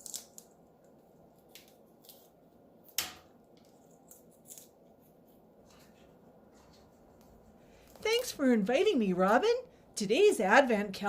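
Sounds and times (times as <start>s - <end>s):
parrot beak crunching food: 0.0s - 2.4s.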